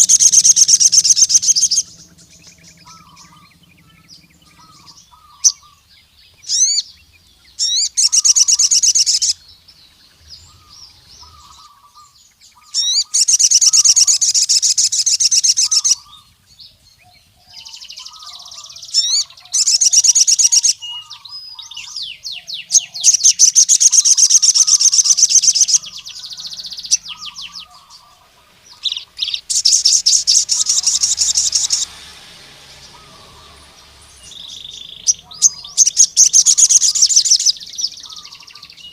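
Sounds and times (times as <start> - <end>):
bird chirping trills: 0.0 - 38.9
faint low bird chirps: 0.0 - 38.9
bird whistled sweeps: 17.5 - 38.9.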